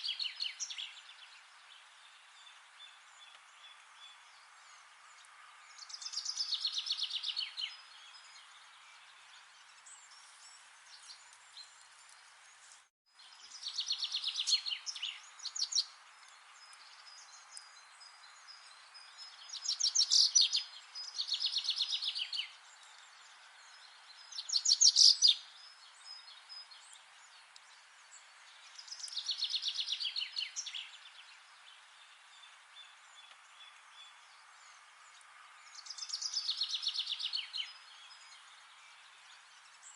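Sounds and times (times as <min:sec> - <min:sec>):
faint steady hiss: 0:00.0 - 0:39.9
songbird trilling: 0:24.4 - 0:25.4.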